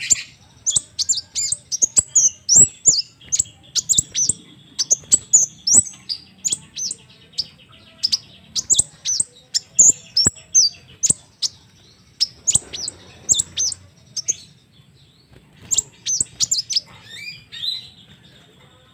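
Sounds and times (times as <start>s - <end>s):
bird singing high chirps: 0.0s - 18.5s.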